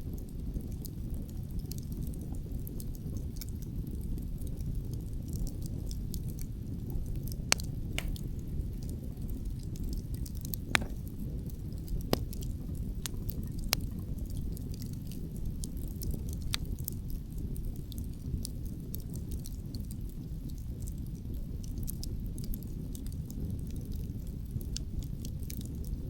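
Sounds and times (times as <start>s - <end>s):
wood fire crackling: 0.1s - 26.0s
sharp pops of fire: 7.0s - 13.9s, 14.8s - 16.9s.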